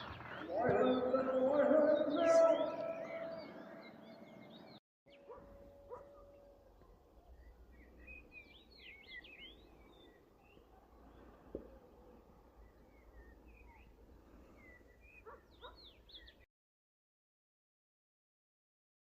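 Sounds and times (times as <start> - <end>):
faint birdsong: 0.0 - 16.5.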